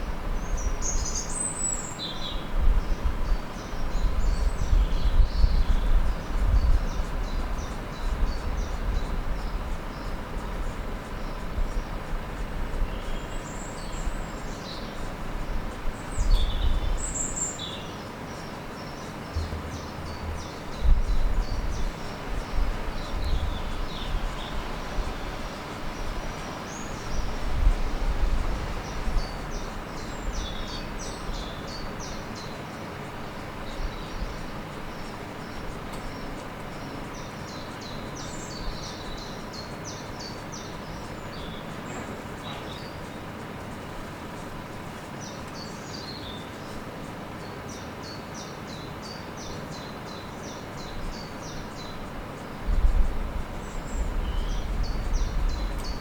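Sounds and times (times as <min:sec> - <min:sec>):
small birds chirping: 0:00.0 - 0:56.0
irregular low rumble: 0:19.3 - 0:22.8.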